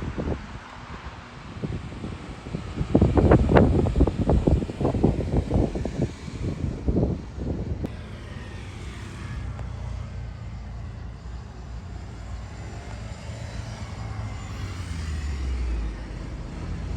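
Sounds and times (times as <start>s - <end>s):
jet airliner engines running: 0.0s - 16.9s.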